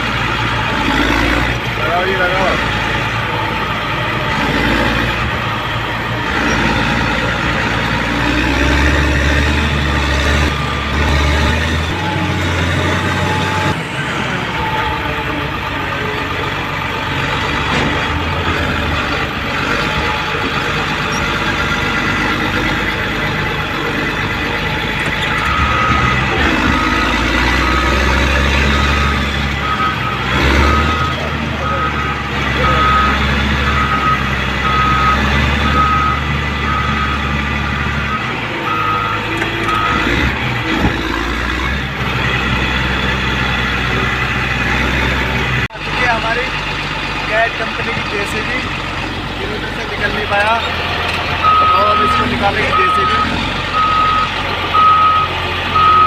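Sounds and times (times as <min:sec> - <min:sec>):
heavy diesel engine drone: 0:00.0 - 0:56.0
reversing alarm beeping: 0:08.6 - 0:15.4, 0:24.6 - 0:40.3, 0:51.4 - 0:56.0.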